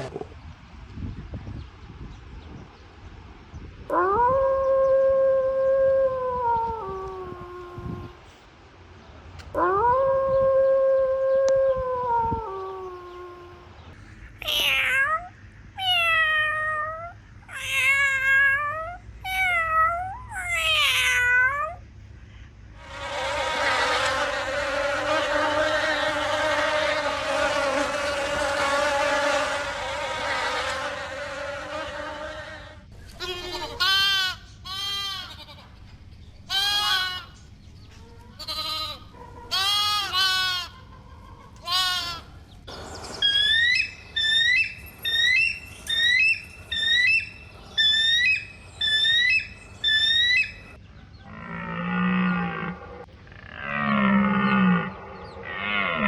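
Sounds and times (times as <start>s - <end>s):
droning buzz: 21.9s - 34.6s.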